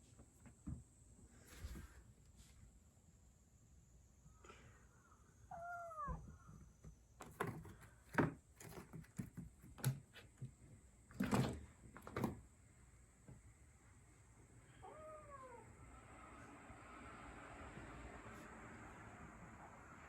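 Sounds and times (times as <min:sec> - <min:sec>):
cat meowing: 0:05.5 - 0:06.5, 0:14.7 - 0:15.7
kitten knocking and scuffling: 0:07.2 - 0:12.5.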